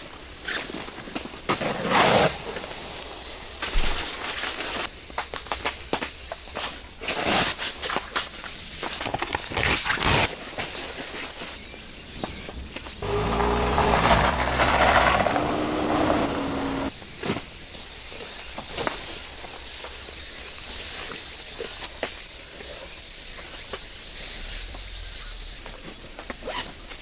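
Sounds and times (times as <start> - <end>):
small motor humming: 13.0 - 16.9.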